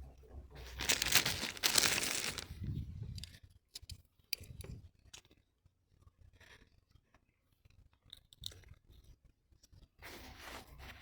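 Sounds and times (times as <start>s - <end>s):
crinkling rustling: 0.6s - 2.6s.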